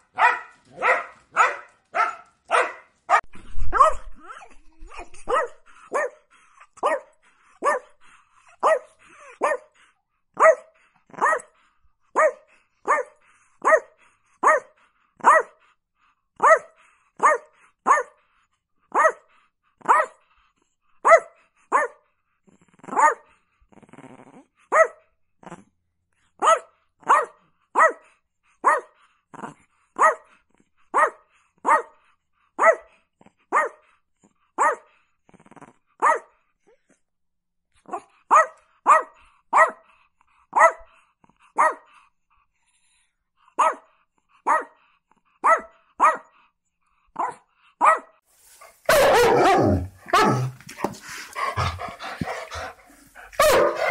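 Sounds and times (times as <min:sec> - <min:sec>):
small dog barking: 0:00.1 - 0:04.4, 0:05.2 - 0:06.2, 0:06.8 - 0:07.9, 0:08.6 - 0:09.7, 0:10.4 - 0:11.5, 0:12.2 - 0:15.6, 0:16.4 - 0:18.1, 0:18.9 - 0:19.2, 0:19.8 - 0:20.2, 0:21.0 - 0:22.0, 0:22.9 - 0:23.2, 0:24.7 - 0:25.0, 0:26.4 - 0:28.0, 0:28.6 - 0:28.9, 0:30.0 - 0:30.3, 0:30.9 - 0:31.9, 0:32.6 - 0:32.9, 0:33.5 - 0:33.8, 0:34.6 - 0:34.9, 0:36.0 - 0:36.3, 0:37.9 - 0:39.8, 0:40.5 - 0:40.9, 0:41.6 - 0:41.9, 0:43.6 - 0:43.9, 0:44.5 - 0:44.8, 0:45.4 - 0:46.3, 0:47.2 - 0:53.9
dog growling: 0:22.4 - 0:23.0, 0:23.7 - 0:24.5, 0:25.4 - 0:25.7, 0:29.3 - 0:29.6, 0:35.2 - 0:35.9, 0:48.6 - 0:53.9.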